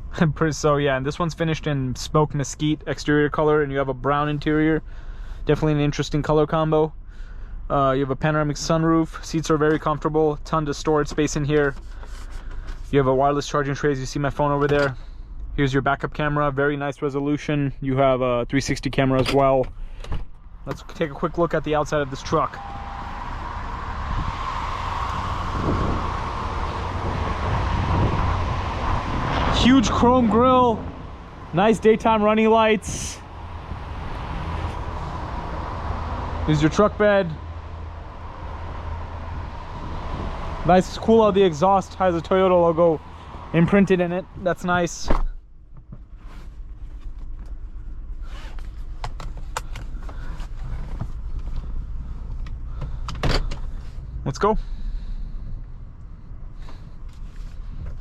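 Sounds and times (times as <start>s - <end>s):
low rumble: 19.7s - 48.9s
wind buffeting microphone: 23.0s - 36.4s.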